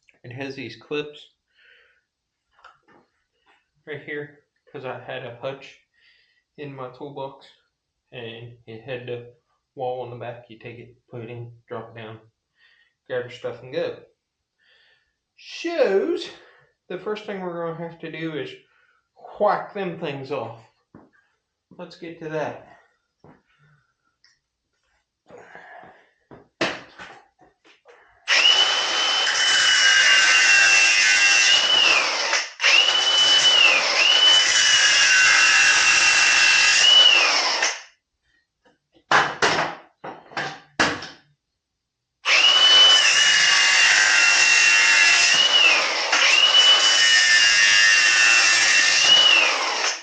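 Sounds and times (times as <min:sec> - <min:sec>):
power tool whining while cutting: 0:28.3 - 0:37.8, 0:42.3 - 0:50.0.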